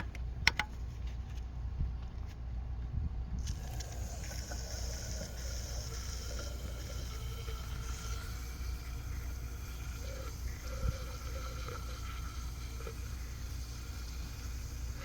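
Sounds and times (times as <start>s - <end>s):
steady low rumble: 0.0s - 7.5s
aerosol can hissing: 3.8s - 15.0s.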